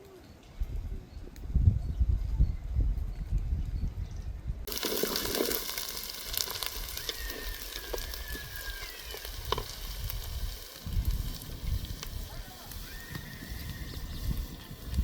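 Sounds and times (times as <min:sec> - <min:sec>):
food sizzling in hot oil: 0:04.7 - 0:15.0.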